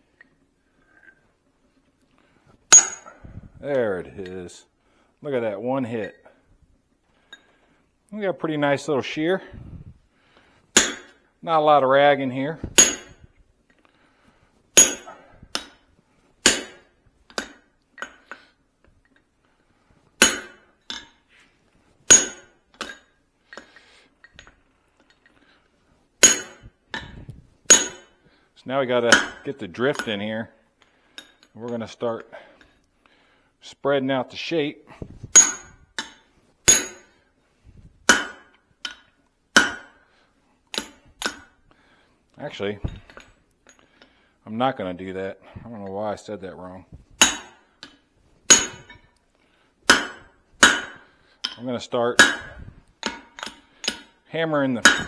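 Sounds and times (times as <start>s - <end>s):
hammer striking steel on anvil: 2.7s - 3.2s, 10.8s - 11.2s, 12.6s - 13.2s, 14.8s - 15.8s, 16.4s - 18.2s, 20.2s - 21.2s, 22.1s - 23.0s, 26.2s - 27.1s, 27.7s - 28.2s, 29.1s - 30.1s, 35.3s - 37.2s, 38.1s - 39.0s, 39.6s - 40.0s, 40.8s - 41.5s, 47.2s - 49.0s, 49.9s - 51.6s, 52.2s - 54.1s, 54.8s - 55.0s.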